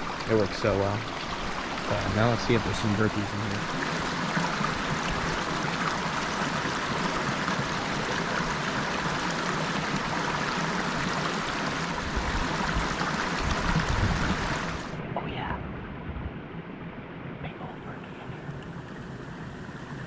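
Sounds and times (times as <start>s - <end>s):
waterfall pouring into a pool: 0.0s - 14.9s
creek water rushing: 0.0s - 15.1s, 17.5s - 20.0s
low rumbling: 13.4s - 19.9s.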